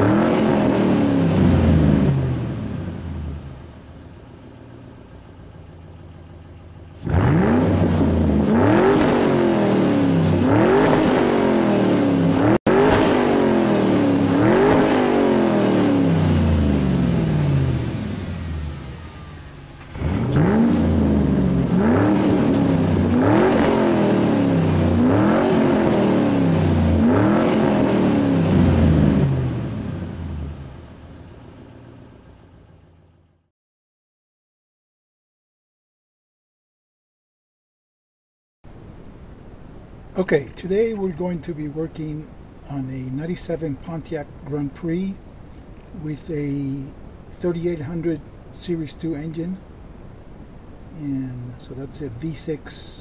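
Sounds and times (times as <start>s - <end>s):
car engine revving: 0.0s - 33.5s.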